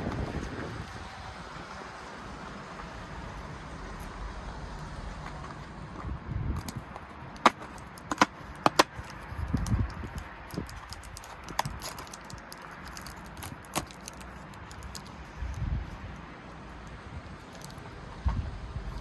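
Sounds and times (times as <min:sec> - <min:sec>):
plastic pieces clicking: 0:06.6 - 0:15.3, 0:17.4 - 0:17.8.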